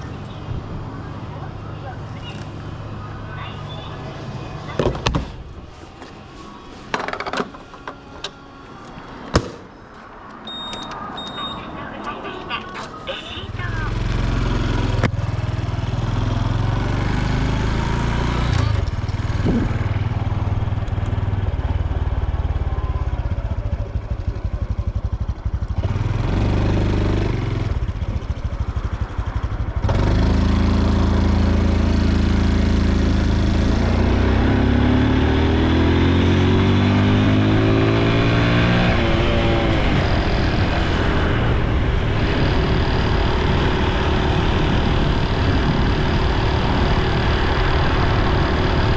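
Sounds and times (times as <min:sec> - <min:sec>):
motorcycle engine accelerating: 0:13.5 - 0:48.9.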